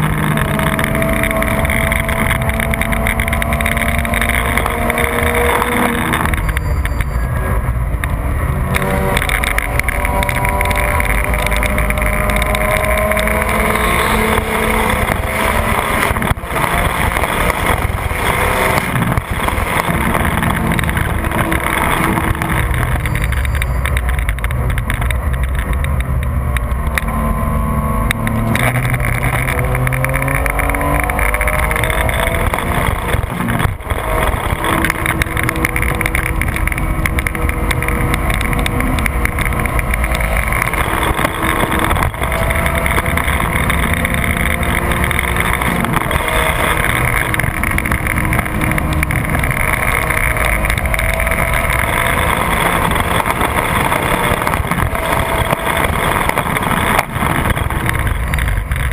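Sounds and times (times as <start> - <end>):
car engine at full throttle: 0.0 - 58.9
wind and road noise: 0.0 - 58.9.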